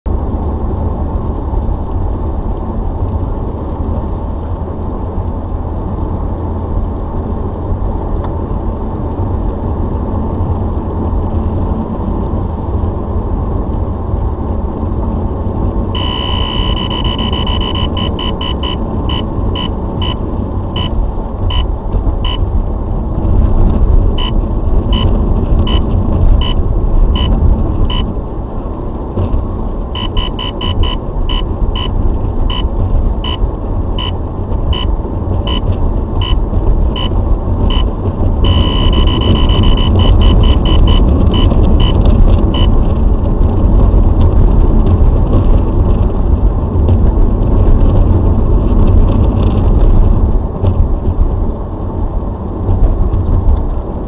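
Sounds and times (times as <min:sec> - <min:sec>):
car road and engine rumble: 0:00.0 - 0:54.0
radar detector tone and beeps: 0:16.0 - 0:22.5, 0:24.1 - 0:28.1, 0:29.9 - 0:42.8.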